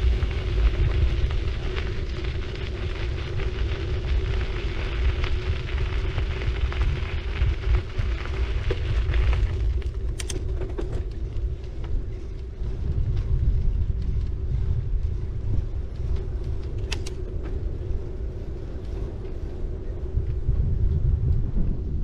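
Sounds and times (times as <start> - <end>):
bicycle tyres rolling: 0.0 - 22.0
wind rumble on microphone: 0.0 - 22.0
sharp clicks: 10.1 - 10.5, 16.8 - 17.2.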